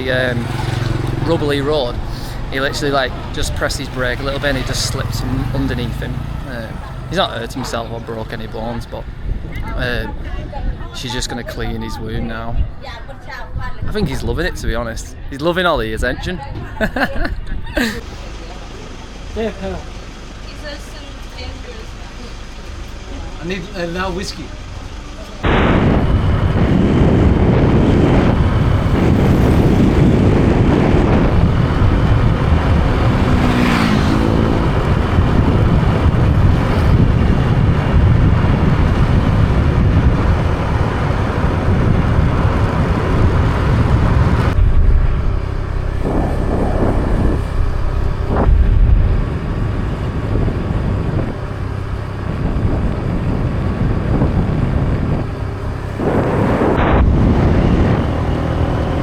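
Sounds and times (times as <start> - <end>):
motorbike engine running: 0.0 - 10.9, 18.2 - 59.0
wind buffeting microphone: 0.0 - 18.0, 25.4 - 59.0.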